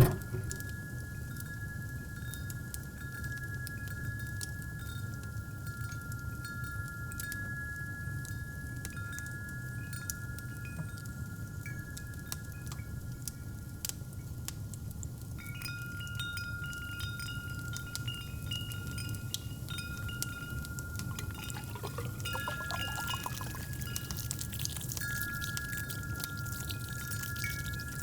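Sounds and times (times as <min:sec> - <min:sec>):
wind chimes ringing: 0:15.4 - 0:28.0
liquid pouring into a cup: 0:18.2 - 0:28.0.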